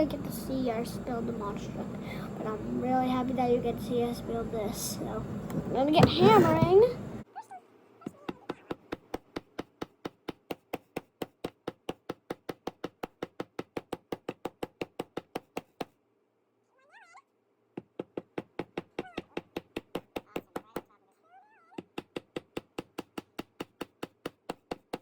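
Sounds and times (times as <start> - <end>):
hammer tapping nails into wood: 8.3 - 15.9, 17.8 - 20.9, 21.8 - 25.0.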